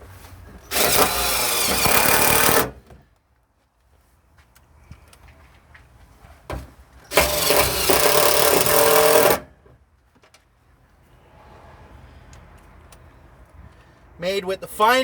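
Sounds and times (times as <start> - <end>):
power driver screwing into metal: 0.7 - 2.8, 7.1 - 9.4.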